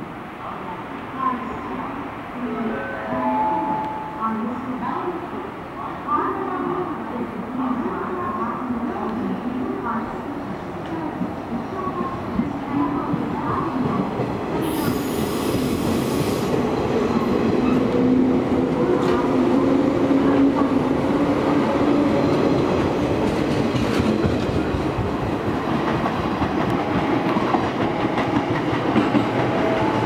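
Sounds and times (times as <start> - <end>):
train wheels rumbling on rail: 9.8 - 30.0.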